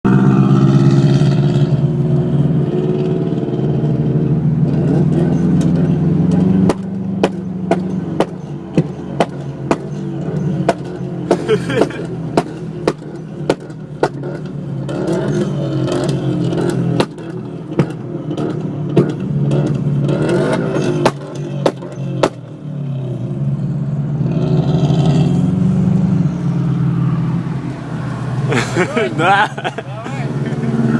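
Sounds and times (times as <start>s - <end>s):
car exhaust droning: 0.1s - 30.9s
exhaust pops: 4.6s - 22.6s.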